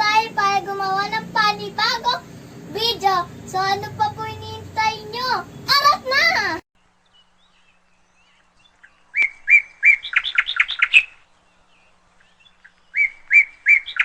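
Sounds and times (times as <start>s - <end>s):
songbird singing whistled notes: 7.0s - 14.0s.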